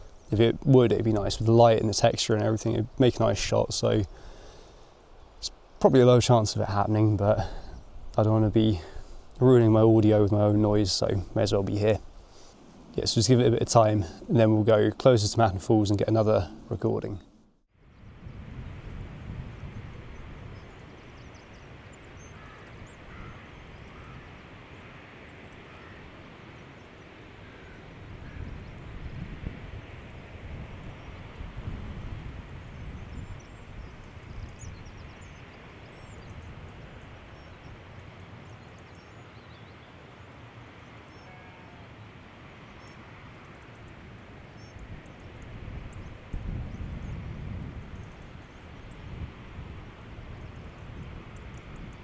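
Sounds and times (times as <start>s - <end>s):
wind gusting on microphone: 0.0s - 25.0s, 25.7s - 38.6s, 43.5s - 52.0s
faint short bird calls: 20.6s - 28.8s, 40.9s - 42.0s.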